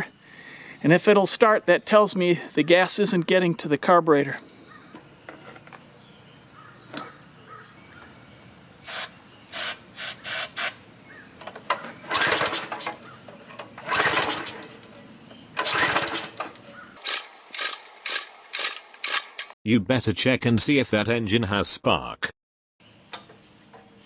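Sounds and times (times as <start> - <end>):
small engine cranking: 12.0 - 12.9, 13.8 - 14.8, 15.6 - 19.6
recoil cord pull-start: 12.0 - 13.0, 13.8 - 14.8, 15.6 - 19.6.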